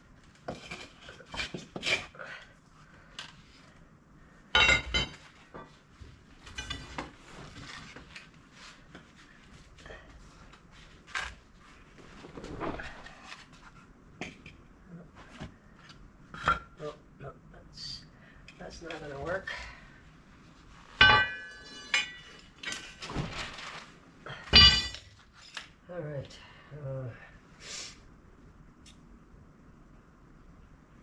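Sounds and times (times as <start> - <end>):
ringing metal clang: 21.0 - 22.4, 24.5 - 25.0.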